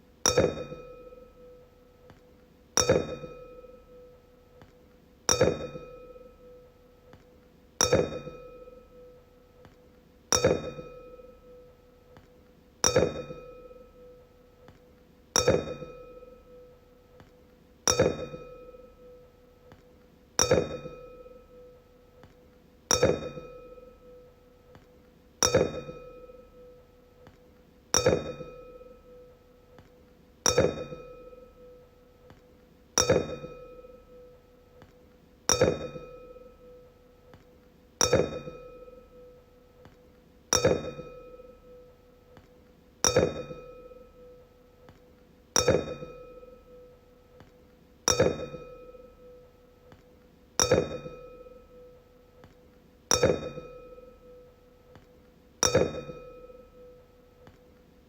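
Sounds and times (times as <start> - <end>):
wine glass ringing when struck: 0.3 - 1.6, 2.8 - 4.1, 7.8 - 9.1, 10.3 - 11.6, 12.8 - 14.0, 15.4 - 16.5, 17.9 - 19.2, 25.4 - 26.8, 28.0 - 29.3, 30.5 - 31.8, 33.0 - 34.3, 35.5 - 36.8, 38.0 - 39.3, 40.5 - 41.8, 43.0 - 44.4, 45.6 - 46.9, 48.1 - 49.4, 50.6 - 51.9, 53.1 - 54.4, 55.6 - 57.0.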